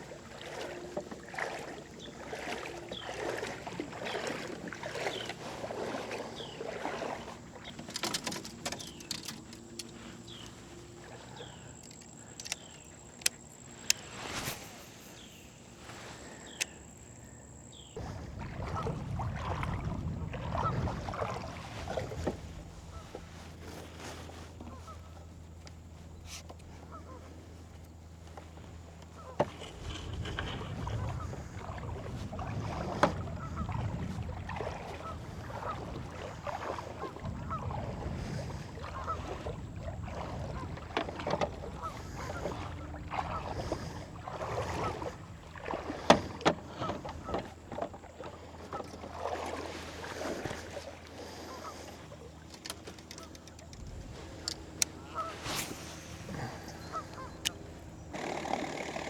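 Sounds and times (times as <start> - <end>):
birds honking: 22.8 - 27.7, 28.4 - 29.8, 32.6 - 59.0.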